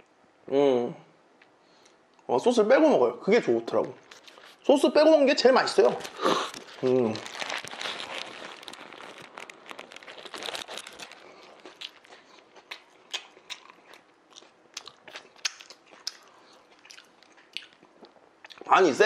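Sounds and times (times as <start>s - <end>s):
person crunching sandwich: 4.1s - 4.7s, 5.8s - 18.6s
wet chewing clicks: 6.1s - 18.7s.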